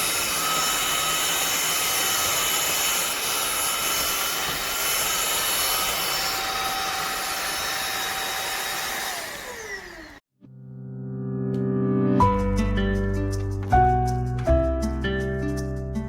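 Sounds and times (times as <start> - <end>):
stick vacuum cleaner running: 0.0 - 10.2
motor spinning down: 3.5 - 10.2
soft music: 10.4 - 16.0.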